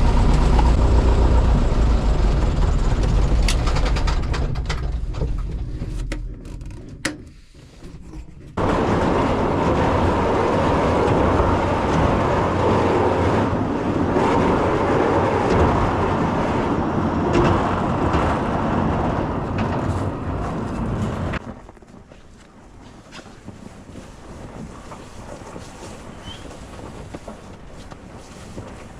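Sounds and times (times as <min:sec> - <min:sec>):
quieter engine sound: 0:00.0 - 0:06.1
light plane engine in flight: 0:00.0 - 0:06.2, 0:08.6 - 0:21.5, 0:22.5 - 0:28.9.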